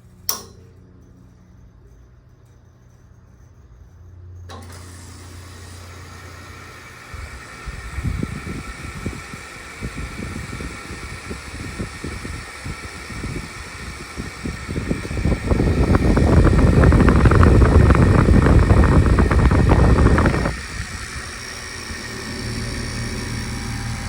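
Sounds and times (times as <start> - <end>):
air conditioner humming: 0.0 - 24.0
loud rough rushing noise: 14.4 - 21.3.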